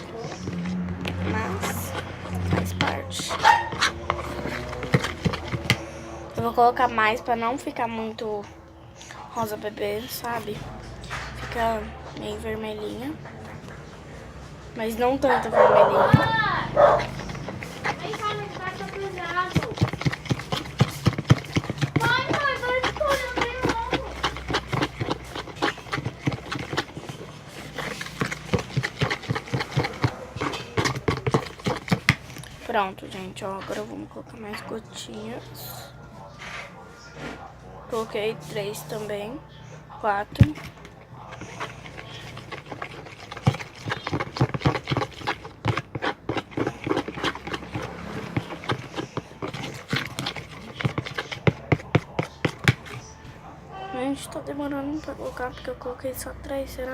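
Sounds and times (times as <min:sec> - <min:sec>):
spoon scraping a container: 0:00.0 - 0:07.1, 0:14.8 - 0:39.7, 0:40.3 - 0:53.2.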